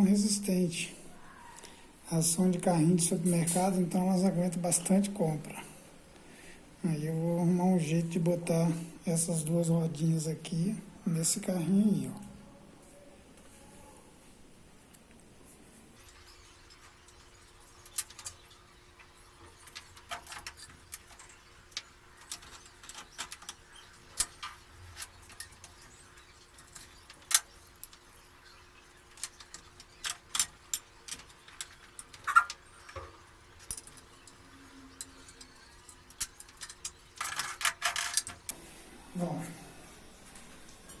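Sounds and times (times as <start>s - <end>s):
faint steady hum: 0.0s - 41.0s
metallic clicks and clinks: 19.6s - 38.6s.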